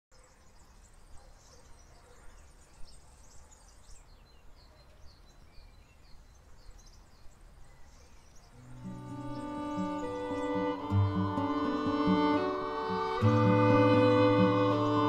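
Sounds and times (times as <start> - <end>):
small birds chirping: 0.1 - 15.0.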